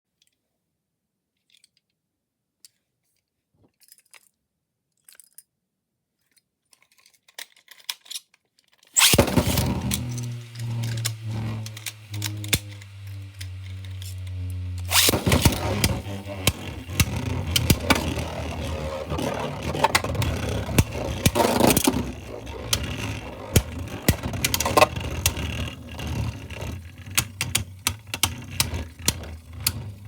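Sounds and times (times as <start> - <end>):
spinning tops clashing: 9.0 - 30.0
spinning tops whirring: 9.0 - 30.0.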